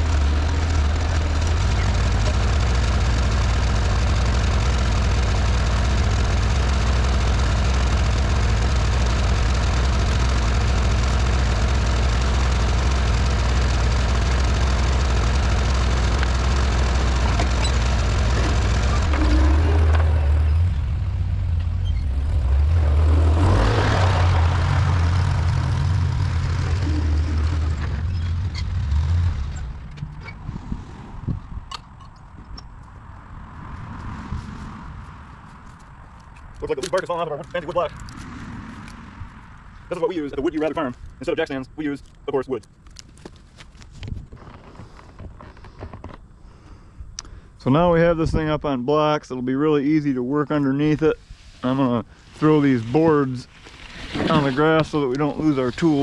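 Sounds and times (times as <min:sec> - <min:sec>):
tractor engine running: 0:00.0 - 0:30.5, 0:42.8 - 0:46.7, 0:51.7 - 0:56.0.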